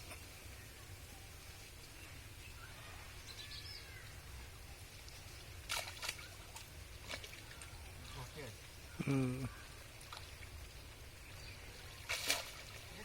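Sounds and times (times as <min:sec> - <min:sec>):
faint bird chirps: 0:00.5 - 0:06.6, 0:07.3 - 0:12.6
sharp knocks or splashes: 0:05.6 - 0:07.7, 0:12.0 - 0:13.0.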